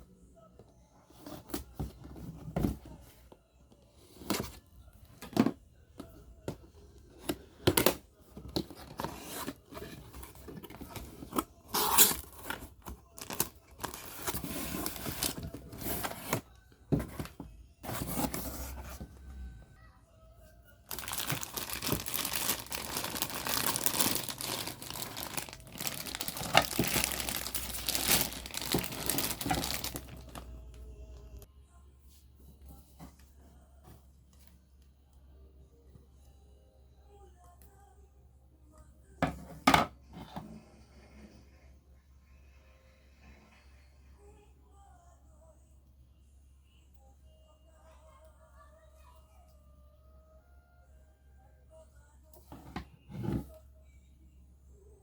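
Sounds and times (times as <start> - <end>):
packaging clicks and rustles: 7.2 - 16.4, 20.9 - 30.8
packaging tearing and crinkling: 20.9 - 30.5.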